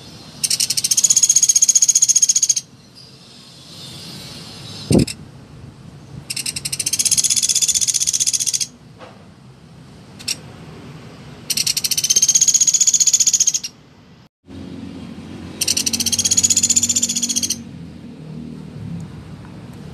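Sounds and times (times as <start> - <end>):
woodpecker rattling trills: 0.4 - 2.7, 6.3 - 8.7, 11.5 - 13.8, 15.6 - 17.6.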